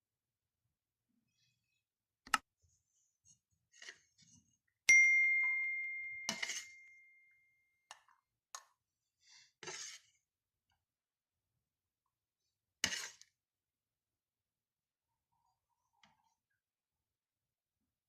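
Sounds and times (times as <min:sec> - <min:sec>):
ringing strike: 0:04.9 - 0:07.4.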